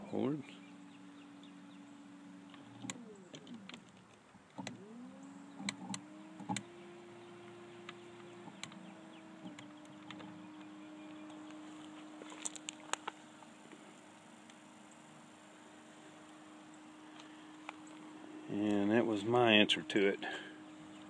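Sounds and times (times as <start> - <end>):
electric trolling motor whining: 0.0 - 21.0
sharp clicks: 2.5 - 4.8, 5.5 - 6.7, 7.8 - 11.6.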